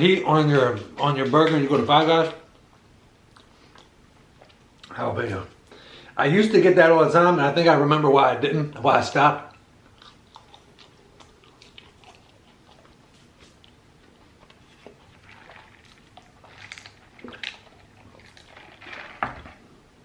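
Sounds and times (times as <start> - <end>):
person chewing food: 2.5 - 5.0, 9.4 - 19.7.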